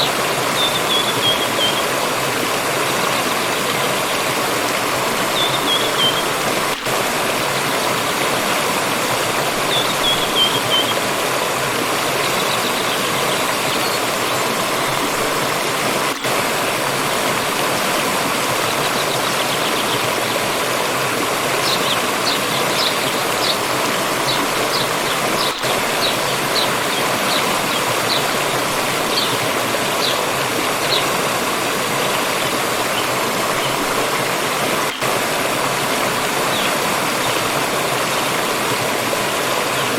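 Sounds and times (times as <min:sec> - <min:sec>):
forest stream rushing: 0:00.0 - 0:39.9
small birds chirping: 0:21.6 - 0:31.1.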